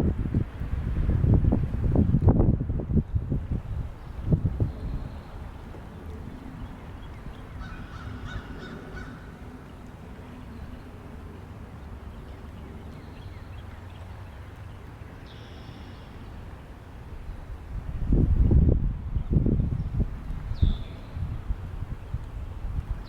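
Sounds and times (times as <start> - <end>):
low wind rumble: 0.0 - 23.0
birds calling: 6.5 - 10.9.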